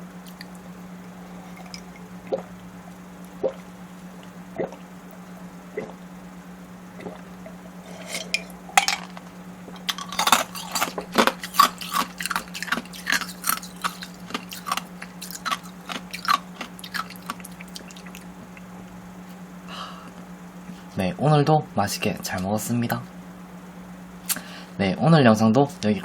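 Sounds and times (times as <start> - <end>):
crunchy wet chewing: 0.0 - 6.0, 6.9 - 19.4
faint steady low hum: 0.0 - 26.0.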